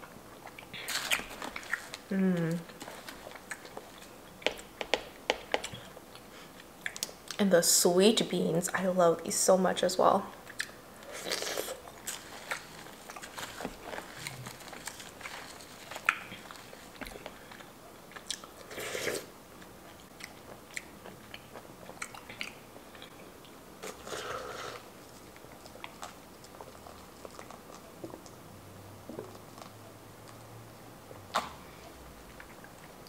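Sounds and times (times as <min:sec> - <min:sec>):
chewing with wet mouth clicks: 0:05.5 - 0:07.4, 0:10.4 - 0:10.8, 0:15.9 - 0:18.6, 0:19.6 - 0:23.6, 0:25.2 - 0:28.4.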